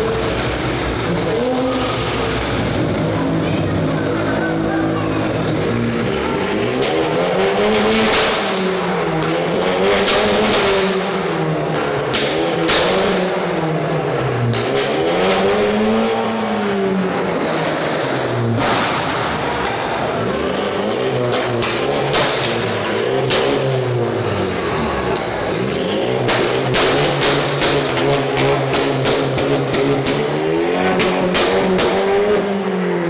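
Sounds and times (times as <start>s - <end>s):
car engine revving: 0.0s - 33.0s
sharp exhaust cracks: 0.0s - 33.0s.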